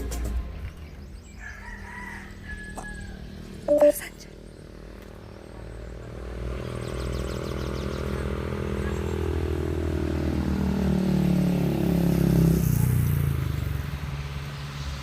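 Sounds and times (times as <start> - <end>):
motorcycle engine passing: 1.7 - 15.0.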